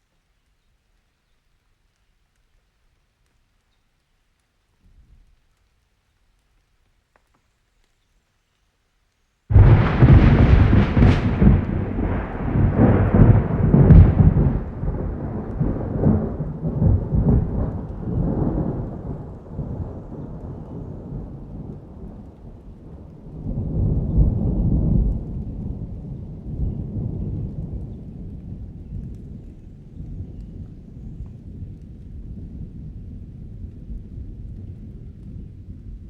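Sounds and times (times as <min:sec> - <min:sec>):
steady rain: 0:00.0 - 0:36.0
thunder rumbling: 0:09.5 - 0:36.0.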